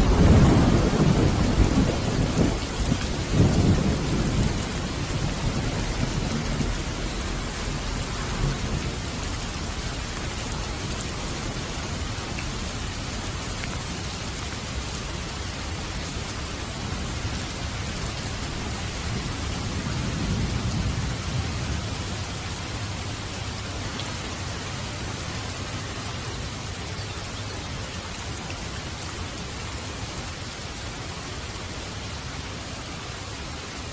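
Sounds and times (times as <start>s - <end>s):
low thunder rumble: 0.0s - 14.0s, 16.7s - 26.7s
steady rain hissing: 0.0s - 33.9s.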